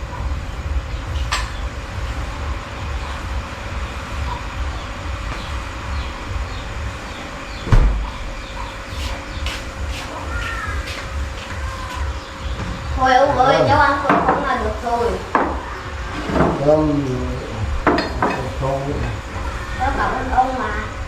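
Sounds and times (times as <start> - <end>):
loud thump: 7.6 - 8.2.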